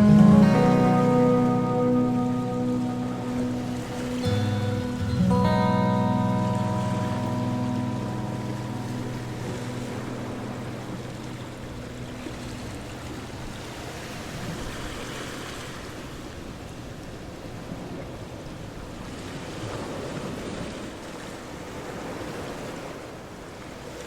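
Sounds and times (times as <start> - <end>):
plucked guitar chord: 0.0 - 14.4
ocean surf washing: 0.0 - 24.0.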